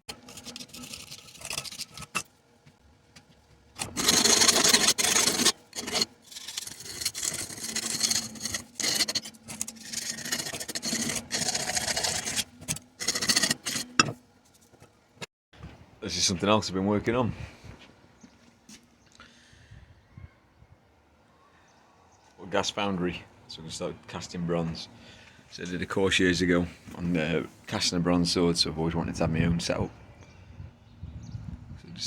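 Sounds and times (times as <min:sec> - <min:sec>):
rasping and scraping of block: 0:00.0 - 0:02.3, 0:03.8 - 0:14.8.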